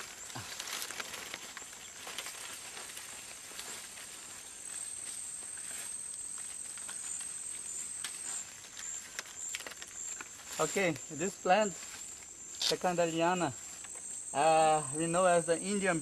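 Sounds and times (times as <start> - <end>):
rustles and steps in leaf litter: 0.0 - 16.0.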